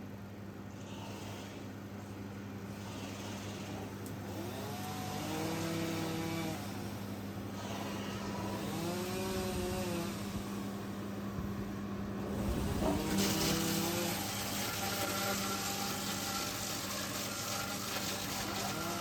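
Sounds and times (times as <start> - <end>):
wood chipper engine humming: 4.0 - 6.9, 7.9 - 19.0
wood chipper whine: 4.3 - 7.1, 7.9 - 19.0
hiss: 12.3 - 19.0.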